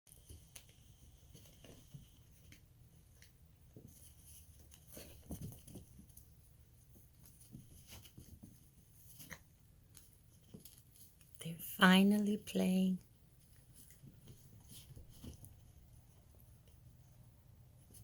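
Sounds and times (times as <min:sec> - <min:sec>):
puppies scuffling and tapping: 0:00.1 - 0:11.2, 0:13.5 - 0:16.8.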